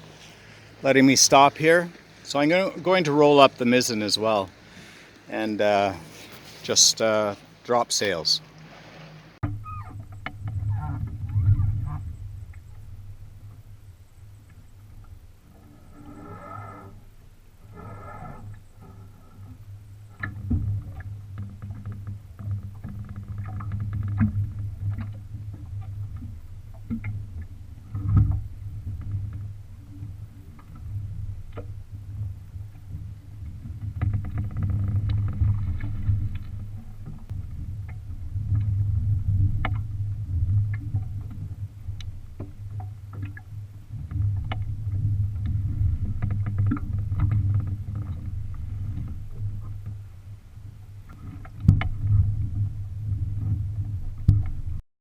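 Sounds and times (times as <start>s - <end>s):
sailboat gear knocking and clicking: 51.1s - 52.2s.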